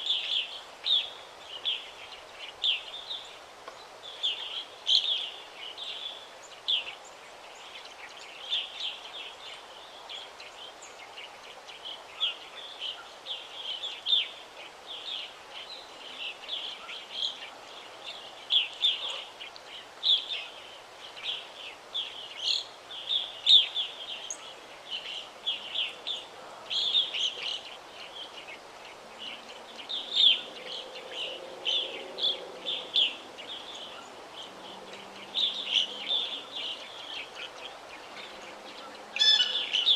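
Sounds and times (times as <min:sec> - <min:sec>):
faint background hiss: 0:00.0 - 0:39.9
birds chirping and twittering: 0:22.0 - 0:39.9.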